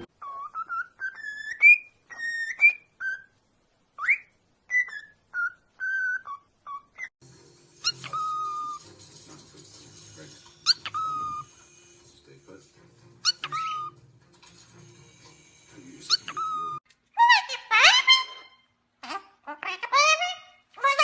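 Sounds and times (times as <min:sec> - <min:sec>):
parrot whistling: 0:00.2 - 0:03.3, 0:07.8 - 0:08.9, 0:10.6 - 0:11.9, 0:13.2 - 0:14.0, 0:16.0 - 0:18.6.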